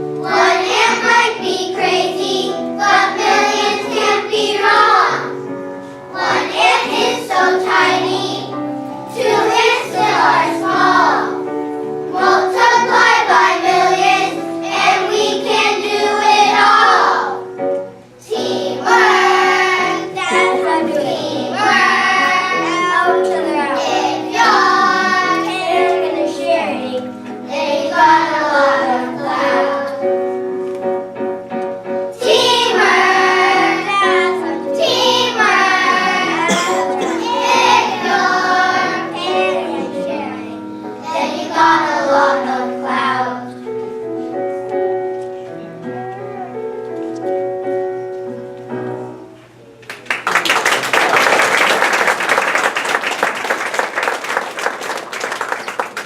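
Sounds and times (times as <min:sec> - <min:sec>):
children singing together: 0:00.0 - 0:17.6, 0:18.2 - 0:30.4, 0:32.1 - 0:43.7
musical accompaniment: 0:00.0 - 0:56.0.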